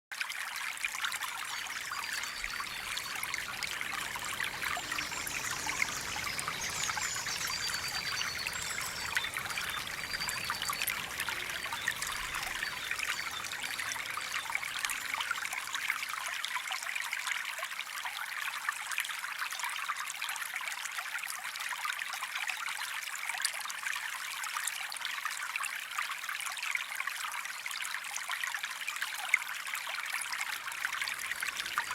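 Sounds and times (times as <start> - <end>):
water trickling and splashing: 0.1 - 31.9
faint high chirps: 1.3 - 15.6, 30.8 - 31.9.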